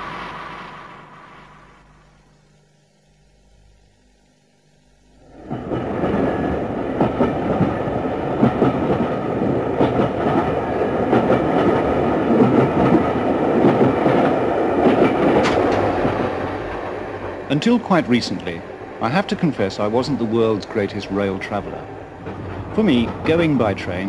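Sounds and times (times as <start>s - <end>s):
train rumbling on rails: 0.0s - 2.0s, 5.2s - 24.0s
wheels clacking over rail joints: 5.5s - 18.5s, 19.3s - 24.0s.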